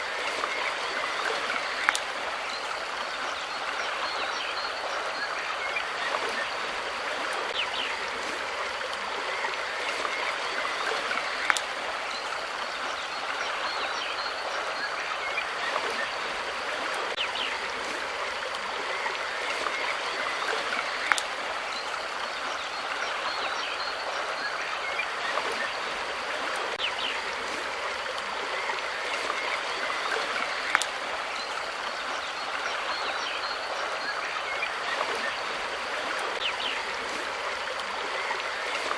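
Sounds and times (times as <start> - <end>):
running water babbling: 0.0 - 38.9.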